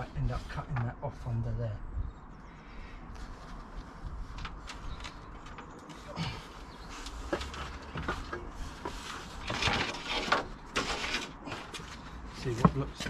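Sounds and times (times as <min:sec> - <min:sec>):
wooden parts knocking and scraping: 0:04.3 - 0:13.0.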